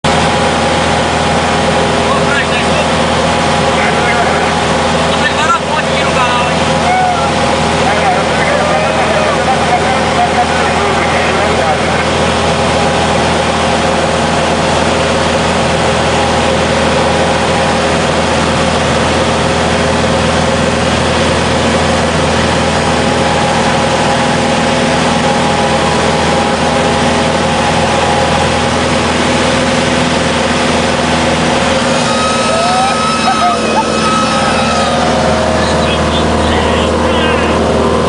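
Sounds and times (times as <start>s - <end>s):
propeller airplane engine running: 0.0s - 38.0s.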